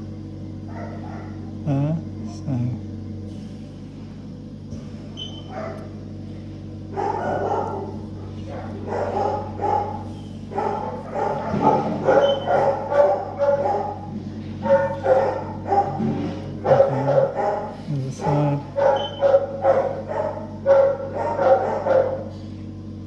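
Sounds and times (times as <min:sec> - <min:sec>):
steady low hum: 0:00.0 - 0:23.0
dog barking and yapping: 0:00.7 - 0:01.4, 0:05.4 - 0:05.9, 0:06.9 - 0:22.4.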